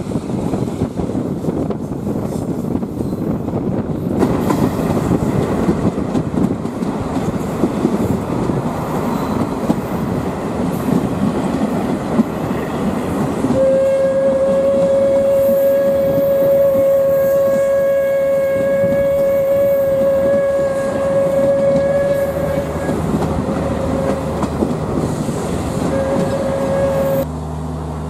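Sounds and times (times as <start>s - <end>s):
train wheels rumbling and clattering: 0.0s - 27.3s
steam locomotive whistle: 13.5s - 24.4s, 25.8s - 27.2s.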